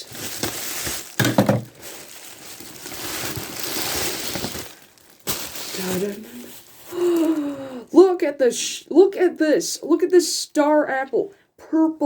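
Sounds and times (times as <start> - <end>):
handling noise: 0.0 - 6.6
packing material rustling: 0.0 - 7.7.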